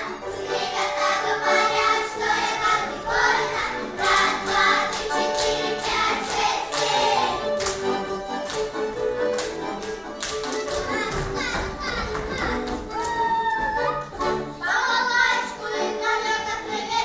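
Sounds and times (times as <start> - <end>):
voices singing together: 0.0 - 7.6, 14.6 - 17.0.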